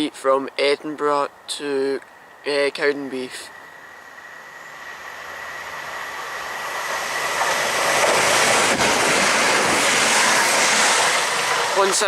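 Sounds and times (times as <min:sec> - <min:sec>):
train passing close by: 0:03.1 - 0:12.0.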